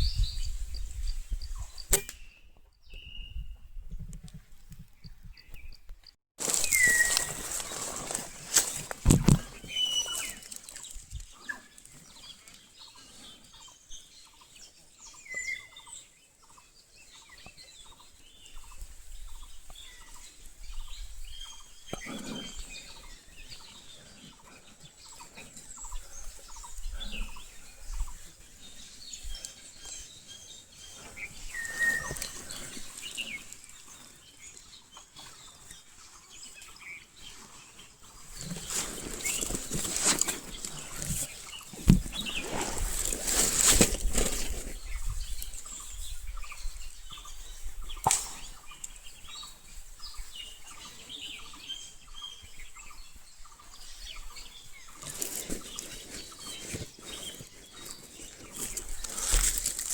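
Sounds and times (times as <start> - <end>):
high bird chirps: 6.5 - 7.8, 9.5 - 11.8, 30.8 - 33.5.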